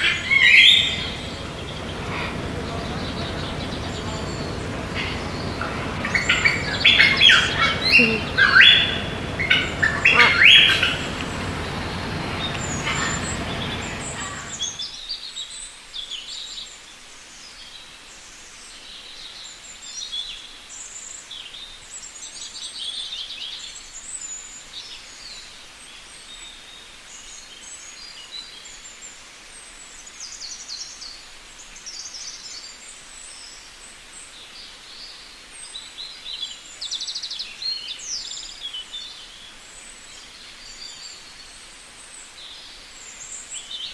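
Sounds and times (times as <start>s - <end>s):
high bird chirps: 0.0s - 14.8s
parakeets squawking: 0.0s - 14.8s
noisy background: 0.0s - 14.9s.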